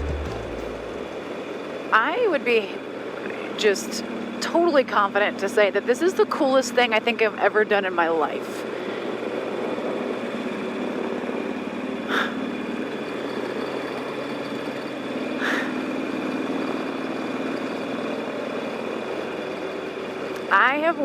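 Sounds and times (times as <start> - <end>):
brief higher sounds: 0.0 - 1.2
motorcycle engine cruising: 0.0 - 21.0.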